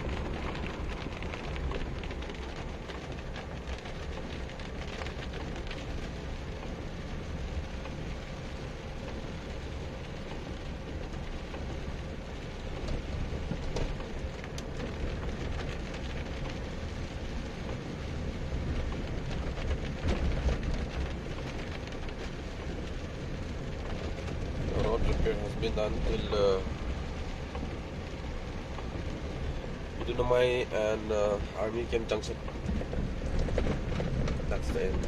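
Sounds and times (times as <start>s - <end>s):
engine and tyres rumbling on wet road: 0.0s - 35.0s
rain pattering on car roof: 0.0s - 35.0s.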